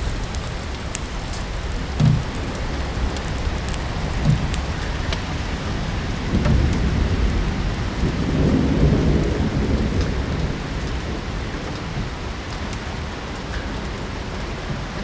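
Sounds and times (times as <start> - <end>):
fireplace crackling: 0.0 - 14.6
low rumble of thunder: 0.0 - 15.0
steady rain: 0.0 - 15.0.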